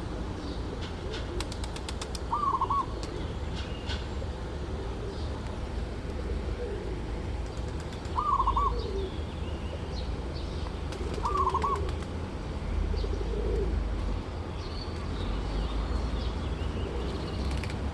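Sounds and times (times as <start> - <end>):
doves cooing: 0.4 - 3.3, 4.2 - 5.4, 6.1 - 9.2, 10.9 - 12.1, 12.9 - 13.8
small birds chirping: 7.5 - 12.0, 14.3 - 17.8.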